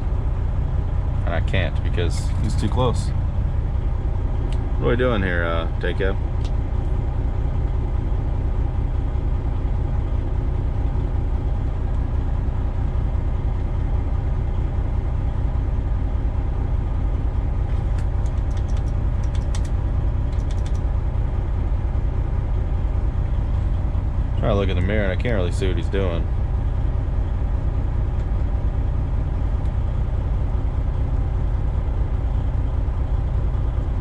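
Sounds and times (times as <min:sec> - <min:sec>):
diesel engine idling: 0:00.0 - 0:34.0
faint clicks: 0:20.3 - 0:20.8.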